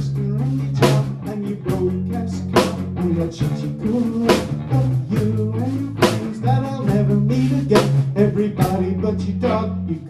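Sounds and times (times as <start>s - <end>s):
sustained bass notes: 0.0s - 10.0s
drum kit with snare hits: 2.6s - 4.6s.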